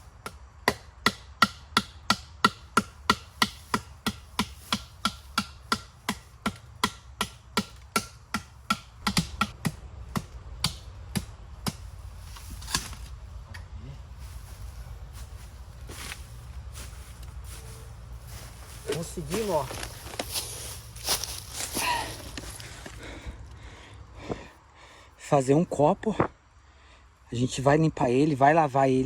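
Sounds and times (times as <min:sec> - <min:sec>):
chopping into bamboo: 0:00.2 - 0:13.1.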